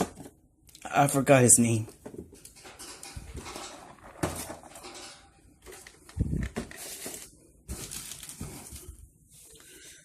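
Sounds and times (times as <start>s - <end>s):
packaging rustling: 5.6s - 9.1s.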